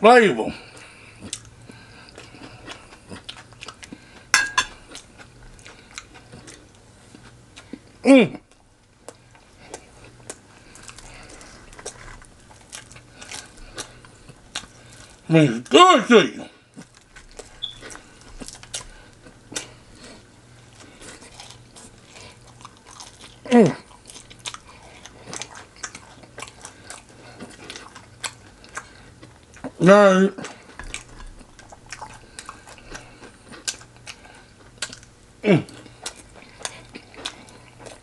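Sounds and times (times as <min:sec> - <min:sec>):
person chewing fried chicken: 0:00.5 - 0:15.8, 0:16.4 - 0:38.0.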